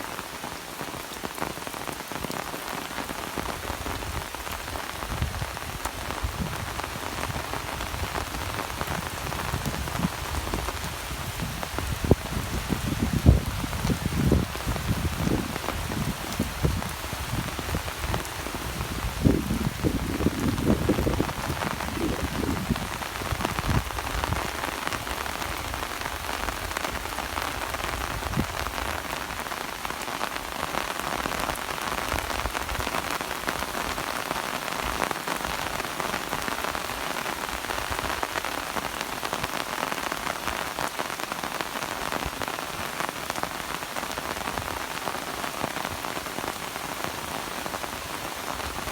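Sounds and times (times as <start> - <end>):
rain falling steadily: 0.0 - 48.9.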